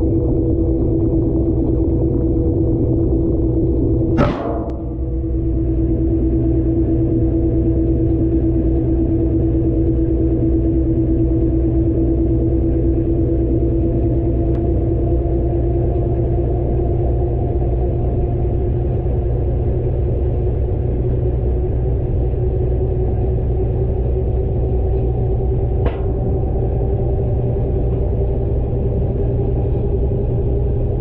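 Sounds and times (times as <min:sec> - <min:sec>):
washing machine drum spinning: 0:00.2 - 0:10.9, 0:24.4 - 0:30.9.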